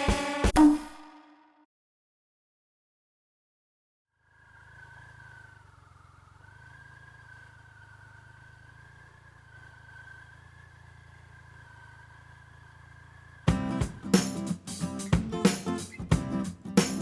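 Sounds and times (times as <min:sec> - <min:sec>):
wavering high whine: 0:04.2 - 0:15.1.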